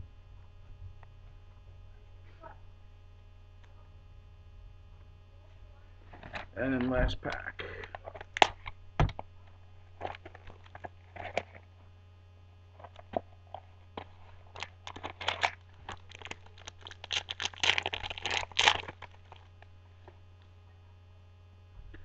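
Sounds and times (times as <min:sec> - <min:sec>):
wrapper tearing and crinkling: 0:07.9 - 0:08.7, 0:12.8 - 0:19.7.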